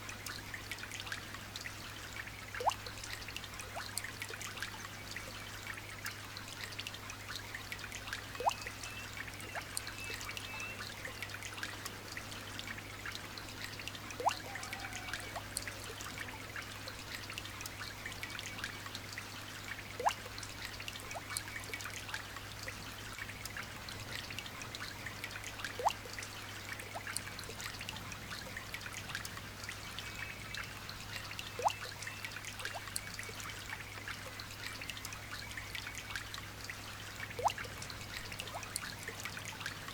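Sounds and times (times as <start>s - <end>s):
water drop plink: 14.2s - 15.0s, 25.8s - 26.0s, 31.6s - 31.9s, 37.4s - 37.7s.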